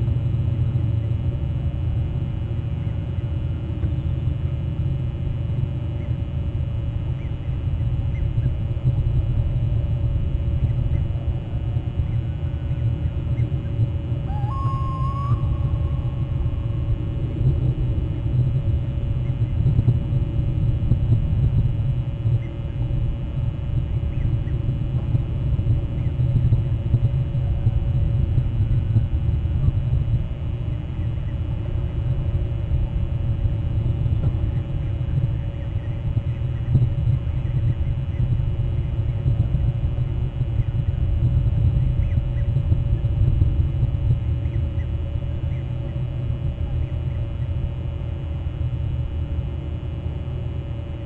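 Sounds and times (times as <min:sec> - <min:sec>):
steady low rumble: 0:00.0 - 0:51.0
bird call: 0:14.3 - 0:15.8.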